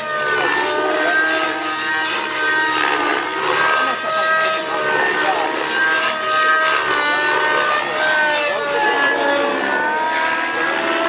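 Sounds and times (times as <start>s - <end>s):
model helicopter whine: 0.0s - 11.0s.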